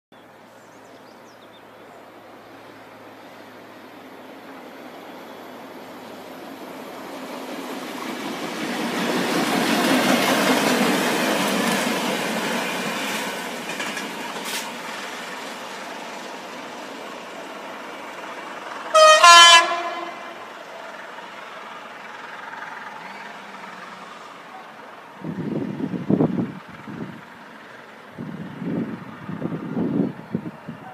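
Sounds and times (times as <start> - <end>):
train passing by: 0.2 - 30.9
train horn: 18.9 - 20.5.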